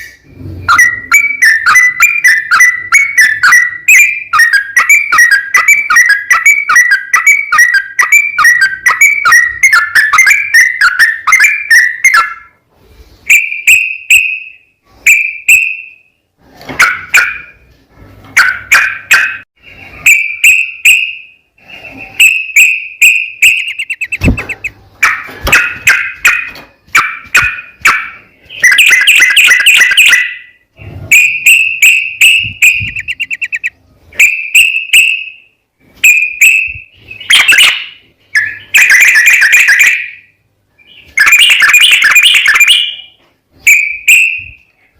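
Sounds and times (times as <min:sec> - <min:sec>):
bird singing bubbling phrases: 0:23.4 - 0:24.8, 0:32.6 - 0:33.8.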